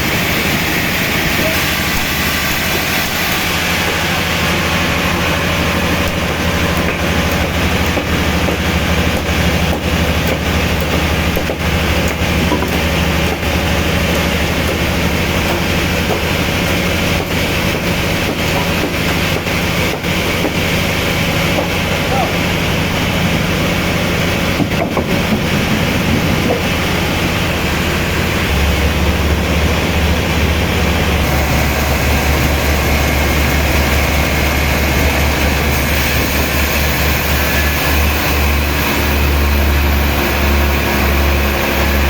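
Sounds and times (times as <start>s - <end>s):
machinery running with low hum: 0.0s - 42.0s.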